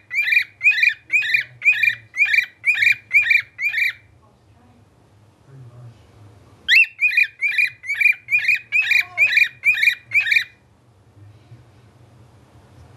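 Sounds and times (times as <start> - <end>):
pet bird whistling a tune: 0.0 - 4.0, 6.7 - 10.6.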